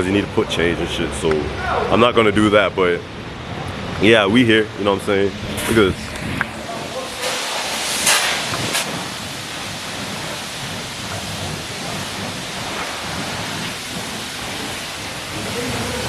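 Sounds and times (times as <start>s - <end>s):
pressure washer spraying car: 5.2s - 16.0s.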